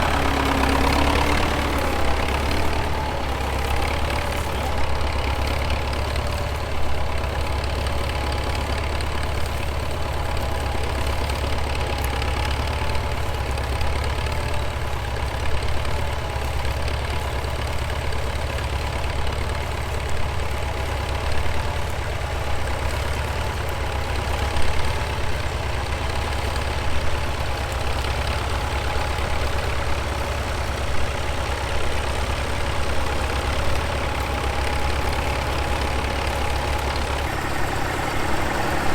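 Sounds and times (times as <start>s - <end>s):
engine whine: 0.0s - 7.6s, 26.4s - 38.9s
tractor engine droning: 0.0s - 38.9s.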